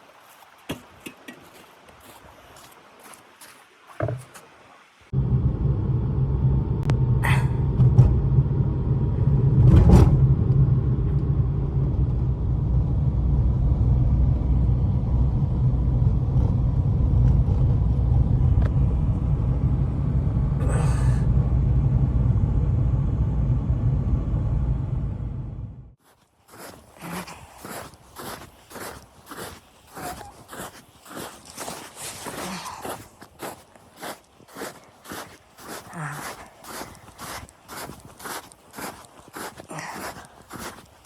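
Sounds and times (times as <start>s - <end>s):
steady low rumble: 5.1s - 26.0s.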